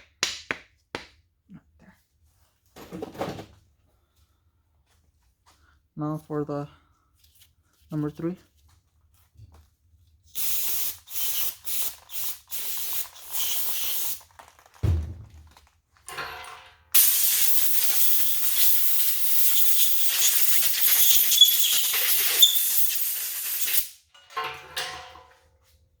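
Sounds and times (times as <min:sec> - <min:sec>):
spray hissing: 0:10.3 - 0:14.2, 0:17.0 - 0:24.0
thump: 0:14.8 - 0:15.6.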